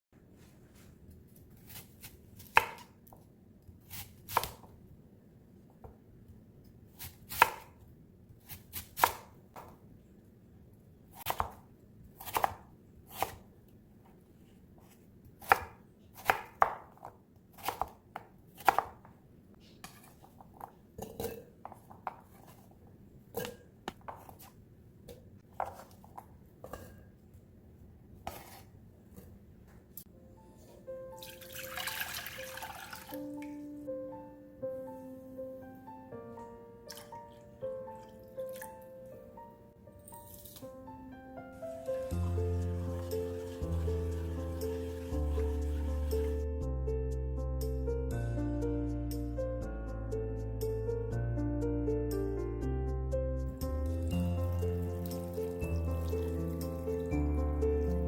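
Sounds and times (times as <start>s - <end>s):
knife chopping on cutting board: 1.6s - 2.9s, 8.4s - 9.8s, 11.2s - 11.6s, 12.2s - 13.4s, 15.4s - 19.1s.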